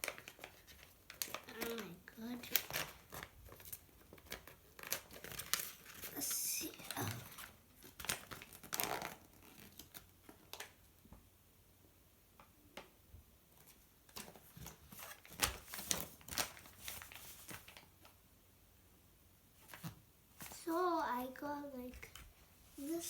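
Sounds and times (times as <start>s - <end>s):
packaging crinkling and rustling: 0.0s - 10.9s, 13.6s - 18.2s.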